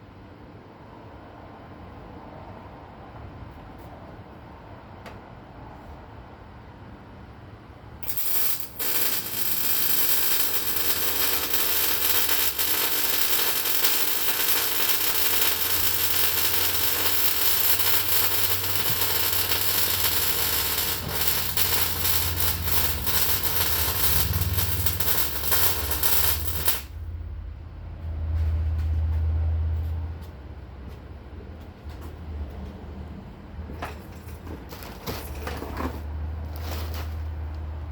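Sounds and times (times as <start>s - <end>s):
welder arc crackling: 8.0s - 27.0s.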